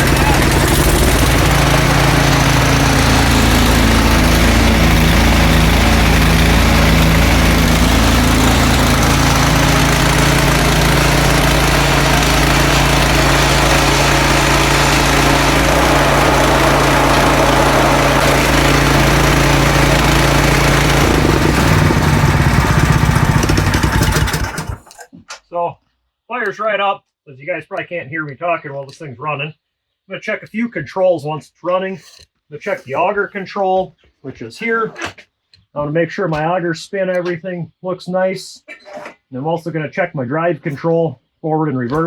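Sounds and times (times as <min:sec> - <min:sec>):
snowblower engine running: 0:00.0 - 0:25.0.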